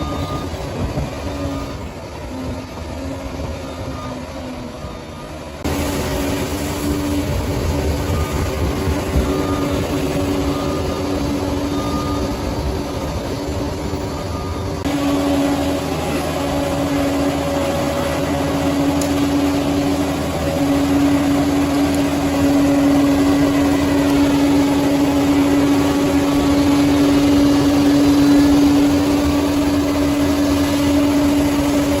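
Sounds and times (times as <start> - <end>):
bulldozer diesel engine running: 0.0 - 32.0
constant whining tone: 0.0 - 32.0.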